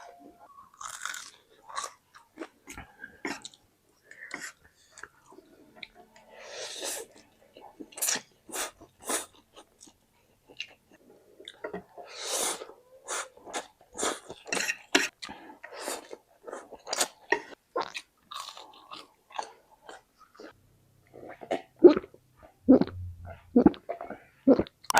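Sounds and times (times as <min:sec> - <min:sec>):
person chewing and smacking: 0:00.8 - 0:03.6
mouth clicks: 0:22.7 - 0:23.8.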